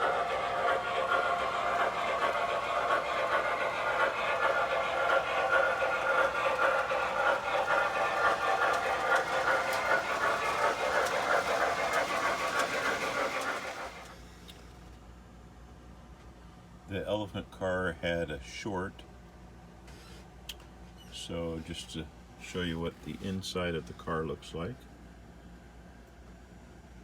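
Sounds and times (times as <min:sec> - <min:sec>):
model train rolling on track: 0:00.0 - 0:14.8.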